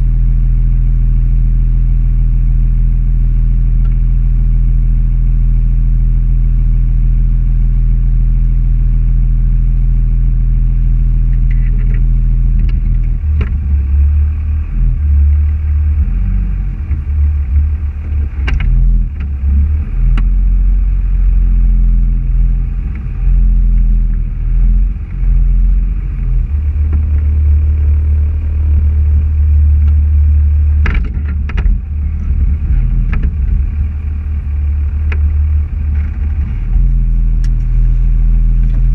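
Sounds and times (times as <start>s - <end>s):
car engine humming: 0.0s - 38.9s.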